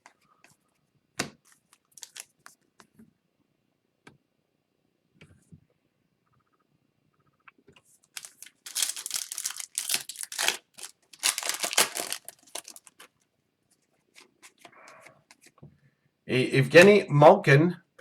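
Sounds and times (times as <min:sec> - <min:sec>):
cards clicking and rustling: 0:01.2 - 0:02.5, 0:08.2 - 0:13.1
foil wrapper tearing and crinkling: 0:01.8 - 0:02.4, 0:08.1 - 0:13.1.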